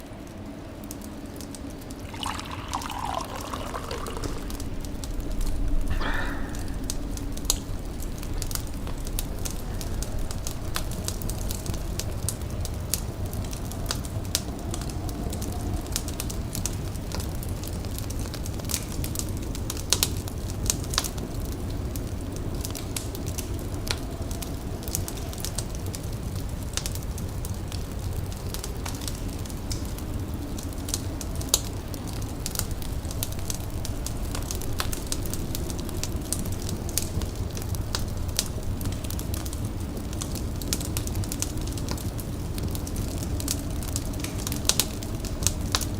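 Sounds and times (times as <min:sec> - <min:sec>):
fire crackling: 0:00.0 - 0:45.9
low rumble: 0:03.7 - 0:12.5.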